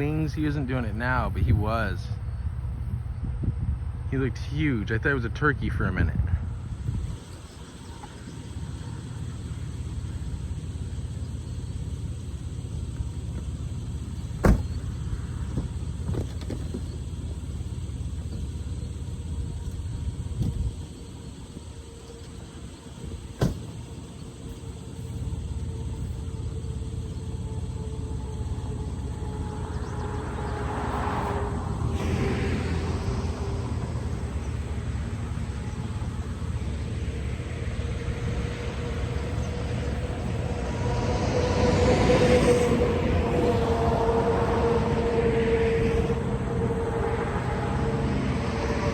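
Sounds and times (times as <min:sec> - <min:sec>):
road or wind noise rushing: 0:00.0 - 0:17.3, 0:18.1 - 0:24.9, 0:27.7 - 0:48.9
steady humming tone: 0:00.0 - 0:48.9
vehicle low rumble: 0:00.0 - 0:48.9
loud thump: 0:14.3 - 0:14.9, 0:23.3 - 0:23.8.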